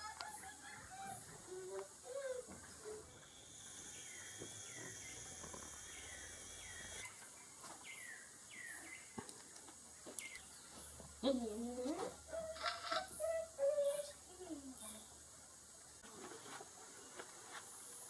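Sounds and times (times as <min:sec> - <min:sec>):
bird chirping: 0:00.1 - 0:09.2, 0:10.0 - 0:11.4
insect buzz: 0:00.3 - 0:07.2.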